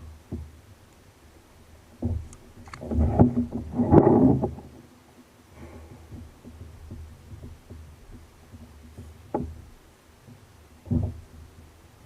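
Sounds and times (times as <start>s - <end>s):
low steady rumble: 0.0s - 12.0s
knocks on kayak hull: 6.0s - 11.6s.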